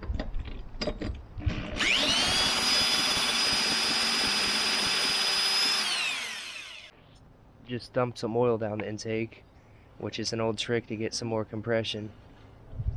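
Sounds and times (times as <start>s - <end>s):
electric power drill whine: 1.5s - 6.9s.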